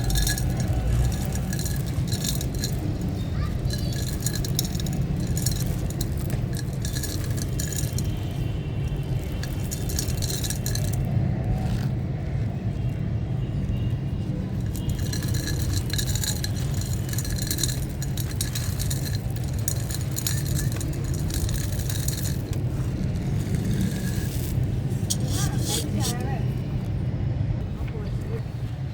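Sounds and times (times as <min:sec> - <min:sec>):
stony material crunching: 0:00.0 - 0:27.0.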